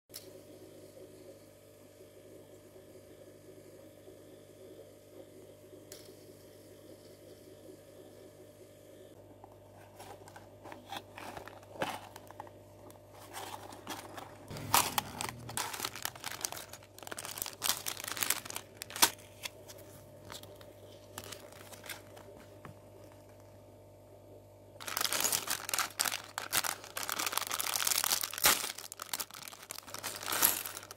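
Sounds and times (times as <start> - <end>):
plastic packaging crinkling: 9.7 - 23.4, 24.8 - 30.9.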